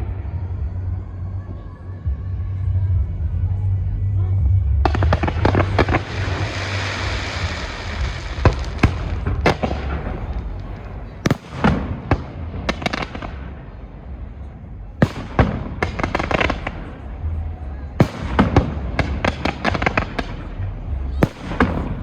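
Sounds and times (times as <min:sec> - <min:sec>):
fireworks bangs: 0:04.8 - 0:22.0
fireworks crackling hiss: 0:04.9 - 0:14.3.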